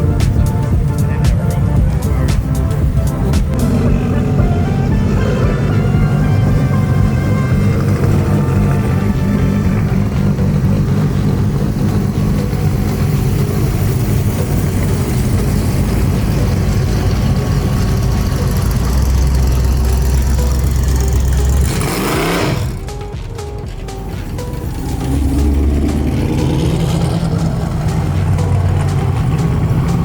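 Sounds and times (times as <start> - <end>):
car engine idling: 0.0 - 30.0
short rising sound: 18.5 - 30.0.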